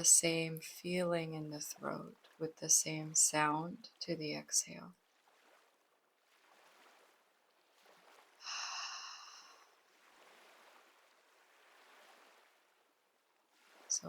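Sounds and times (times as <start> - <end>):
faint breathing hiss: 8.4 - 9.8.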